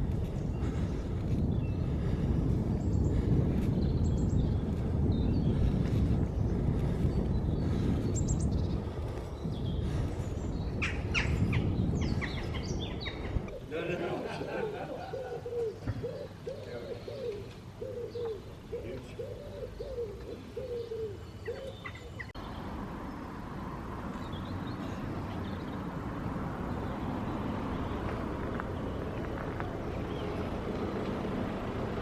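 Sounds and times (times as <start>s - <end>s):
wind and road rushing: 0.0s - 16.5s, 22.0s - 32.0s
pigeon cooing: 14.5s - 22.3s.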